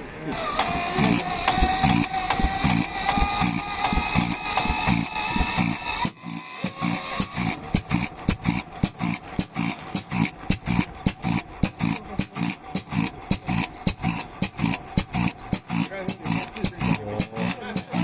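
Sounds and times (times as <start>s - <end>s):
stationary engine exhaust beats: 0.0s - 18.0s.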